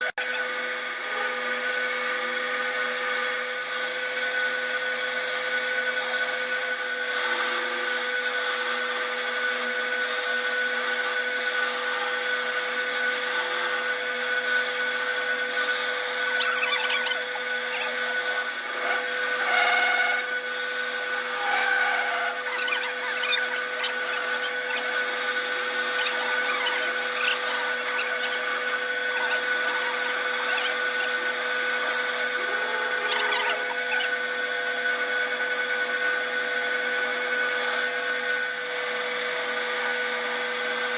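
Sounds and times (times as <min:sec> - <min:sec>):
metalworking machine whining: 0:00.0 - 0:40.9
scraping and squealing: 0:15.1 - 0:34.4.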